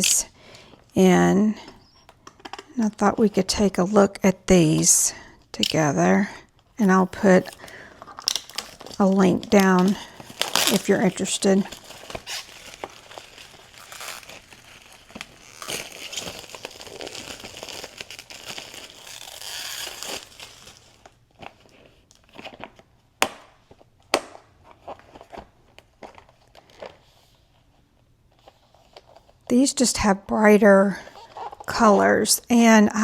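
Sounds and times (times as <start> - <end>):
plastic packaging crinkling: 5.6 - 23.0.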